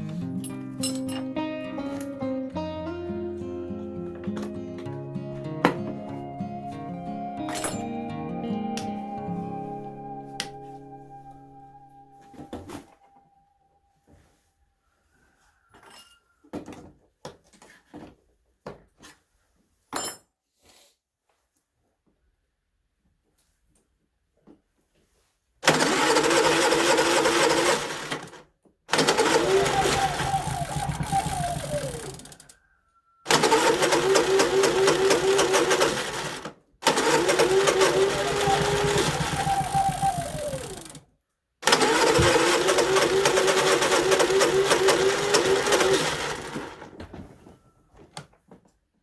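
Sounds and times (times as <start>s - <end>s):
generator engine running: 25.7s - 28.2s, 28.9s - 32.4s, 33.3s - 41.0s, 41.7s - 46.8s.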